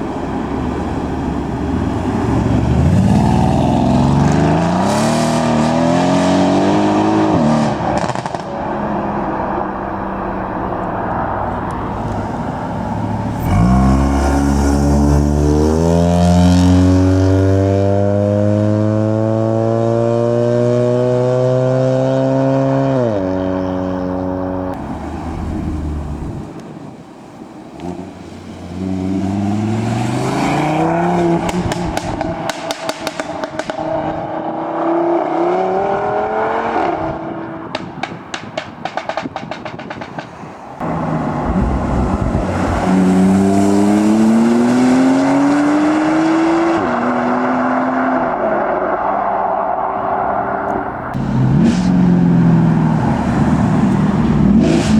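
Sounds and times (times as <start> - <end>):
car engines accelerating hard: 0.0 - 26.7, 27.6 - 54.9
exhaust crackles: 36.7 - 45.8, 46.8 - 54.9.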